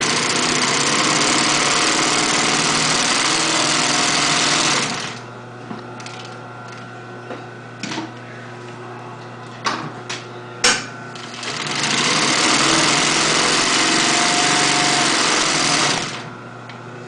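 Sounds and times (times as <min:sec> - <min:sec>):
sewing machine stitching: 0:00.0 - 0:05.2, 0:11.2 - 0:16.3
motor humming: 0:11.2 - 0:16.8.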